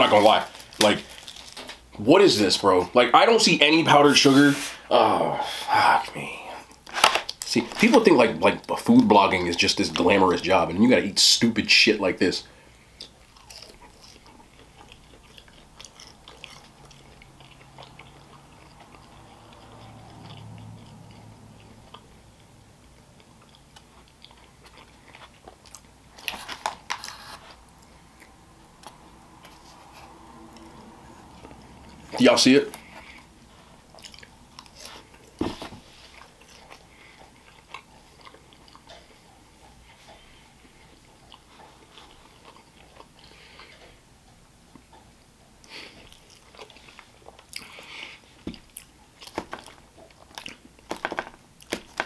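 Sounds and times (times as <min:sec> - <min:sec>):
chewing with mouth clicks: 0:12.7 - 0:52.0.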